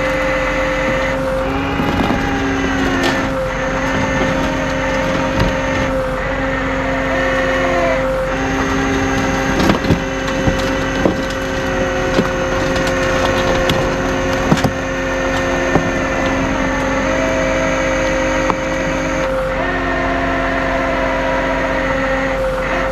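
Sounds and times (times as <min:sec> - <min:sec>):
heavy vehicle engine running: 0:00.0 - 0:22.9
sharp knocks and cracks: 0:00.8 - 0:06.1, 0:08.3 - 0:19.4.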